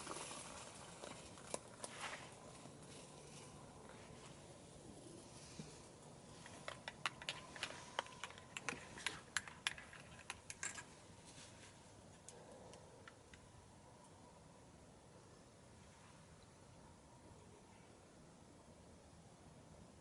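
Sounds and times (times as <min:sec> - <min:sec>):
wood fire crackling: 0:00.0 - 0:04.9.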